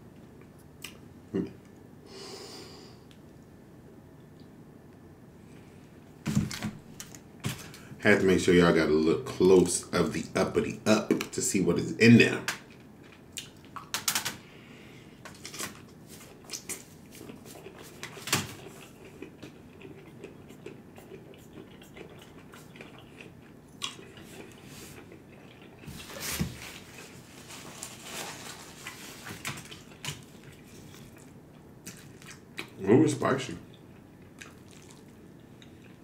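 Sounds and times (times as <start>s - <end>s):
wet chewing mouth sounds: 16.2s - 27.2s, 28.8s - 32.8s, 33.7s - 36.0s.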